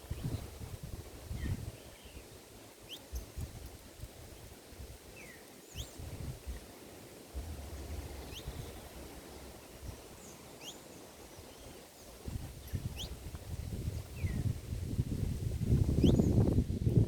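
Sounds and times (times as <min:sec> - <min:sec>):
small birds chirping: 0:01.3 - 0:14.6, 0:15.7 - 0:16.6
low rumble: 0:07.3 - 0:10.2.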